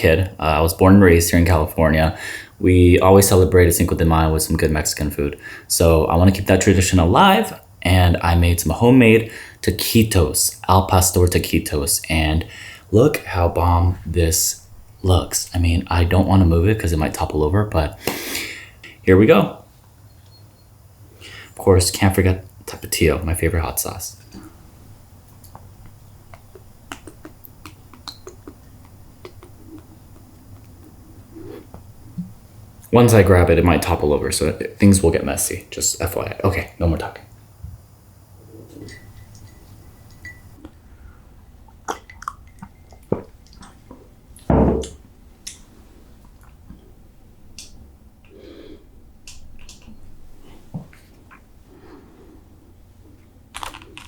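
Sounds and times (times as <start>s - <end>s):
soft wet squishy sounds: 41.7s - 44.5s.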